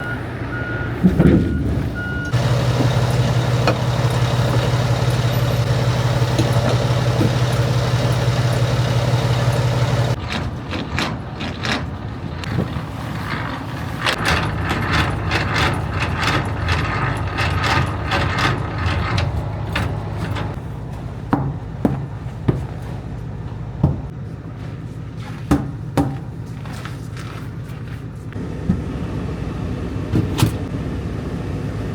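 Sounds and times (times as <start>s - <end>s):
truck engine running: 0.0s - 11.3s, 11.9s - 25.5s, 26.2s - 31.9s
clicks and rattles: 2.3s - 10.4s.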